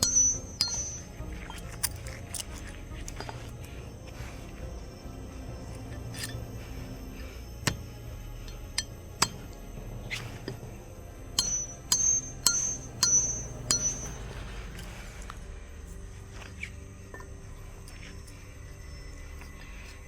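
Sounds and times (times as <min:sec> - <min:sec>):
sharp ringing clinks: 0:00.0 - 0:02.6, 0:07.7 - 0:09.6, 0:11.4 - 0:14.9
background music: 0:00.0 - 0:20.0.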